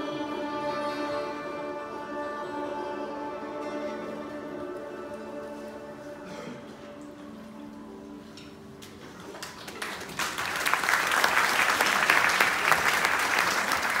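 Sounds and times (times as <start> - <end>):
plucked-string music: 0.0 - 9.2
audience applause: 9.2 - 14.0.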